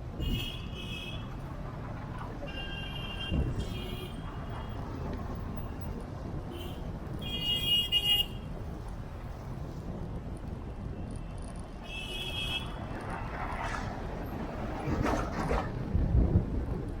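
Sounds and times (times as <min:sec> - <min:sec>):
road and engine noise: 0:00.0 - 0:17.0
vehicle horns honking: 0:06.5 - 0:08.4.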